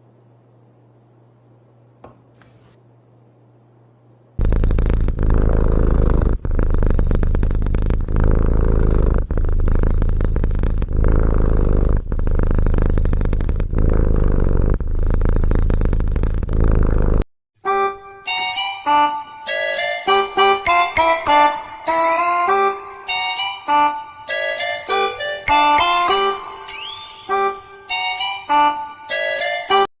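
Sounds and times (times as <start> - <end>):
cat purring: 4.4 - 17.2, 24.3 - 27.0.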